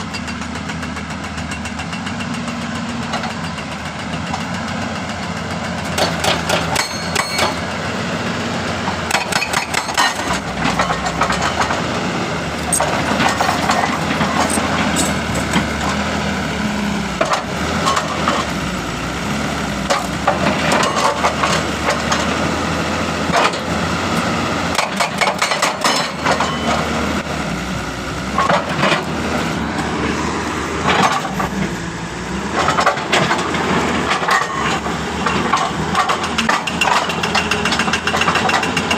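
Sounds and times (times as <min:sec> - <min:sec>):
hydraulic breaker hammering rock: 0:00.0 - 0:07.7, 0:08.9 - 0:16.0, 0:19.8 - 0:22.5, 0:23.2 - 0:27.0, 0:32.6 - 0:38.9
diesel engine running: 0:00.0 - 0:38.9.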